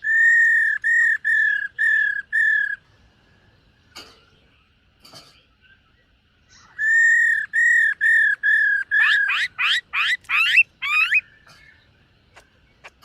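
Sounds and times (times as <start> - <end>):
bird whistling song: 0.0 - 2.8, 6.6 - 13.0.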